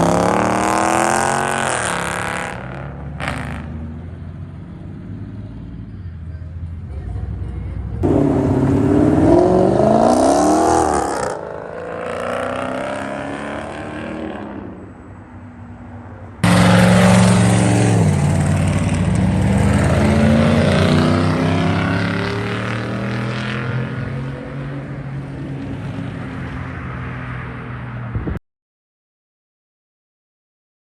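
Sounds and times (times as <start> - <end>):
car engine revving and accelerating: 0.0 - 3.7, 8.0 - 14.9, 16.4 - 27.4
car launching with deep exhaust: 8.0 - 11.4, 16.4 - 23.6.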